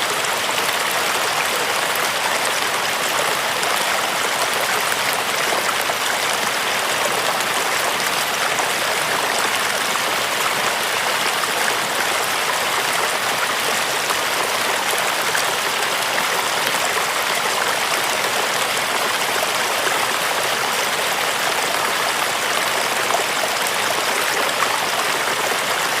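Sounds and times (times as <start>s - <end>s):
running water: 0.0s - 26.0s.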